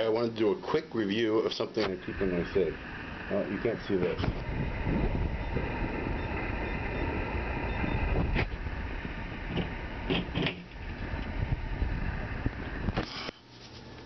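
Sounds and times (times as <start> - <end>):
low rumble of rummaging: 1.9 - 14.0
sharp clicks and knocks: 9.5 - 11.3.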